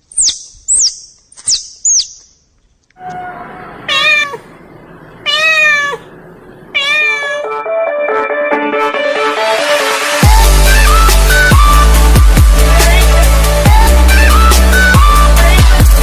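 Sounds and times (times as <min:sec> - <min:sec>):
high squeaks falling in pitch: 0:03.0 - 0:04.4
cat meowing: 0:03.0 - 0:04.6, 0:05.2 - 0:06.1, 0:06.7 - 0:07.6.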